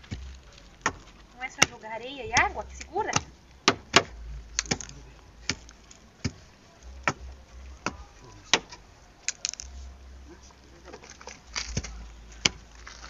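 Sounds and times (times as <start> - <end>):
tool pounding hard strikes: 2.4 - 6.4.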